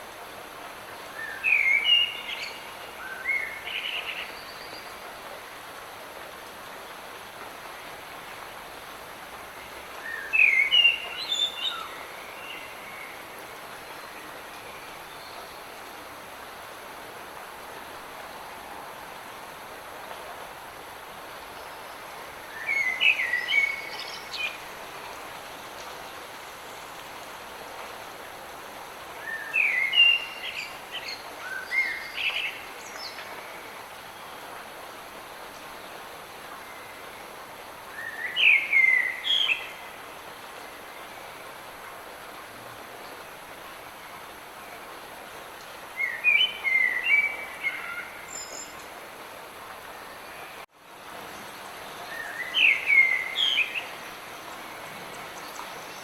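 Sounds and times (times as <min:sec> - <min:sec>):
light rain hissing: 0:00.0 - 0:56.0
songbird chirping: 0:45.6 - 0:49.0, 0:49.8 - 0:56.0.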